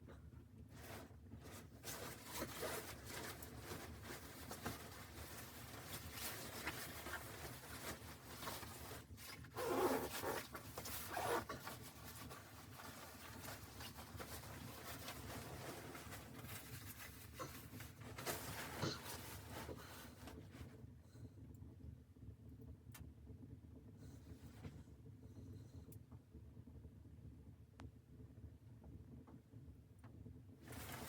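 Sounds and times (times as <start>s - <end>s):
rustling and scratching: 0.0s - 20.8s, 30.6s - 31.0s.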